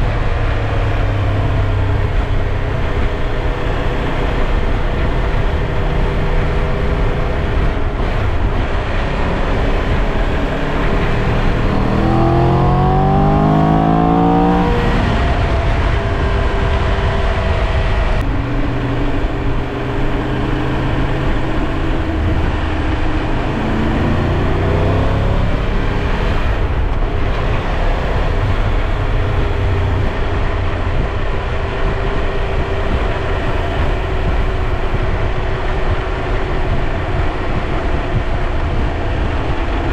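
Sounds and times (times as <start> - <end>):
motorcycle engine running: 0.0 - 39.9
rush of wind and road noise: 0.0 - 39.9.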